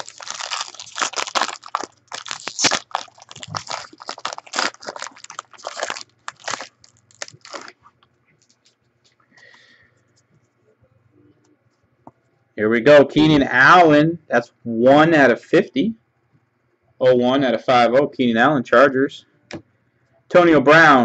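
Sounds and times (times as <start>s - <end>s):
packaging crinkling and tearing: 0.0s - 8.8s.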